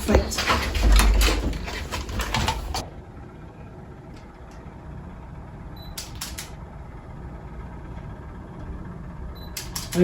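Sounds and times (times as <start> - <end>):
low rumble of room noise: 0.0 - 10.0
sharp clicks: 6.0 - 6.6, 9.6 - 10.0.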